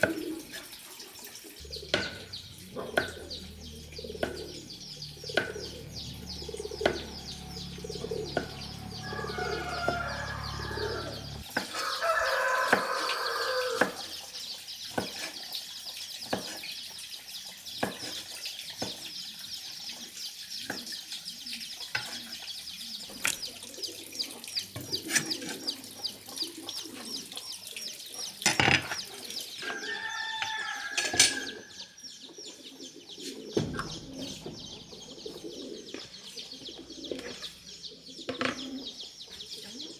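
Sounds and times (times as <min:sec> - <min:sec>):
chickens clucking: 0:01.5 - 0:16.7, 0:23.0 - 0:39.9
rooster crowing: 0:08.9 - 0:14.0, 0:29.6 - 0:31.8.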